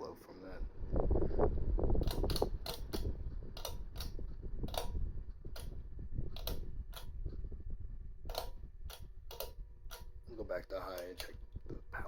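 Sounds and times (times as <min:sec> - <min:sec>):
ceiling fan air rush: 0:00.5 - 0:12.0
fan ticking: 0:01.9 - 0:07.5, 0:08.2 - 0:12.0.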